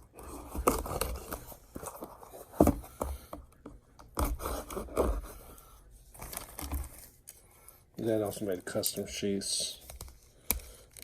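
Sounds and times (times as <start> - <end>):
knife scraping cardboard package: 0.2 - 2.8, 4.1 - 5.6.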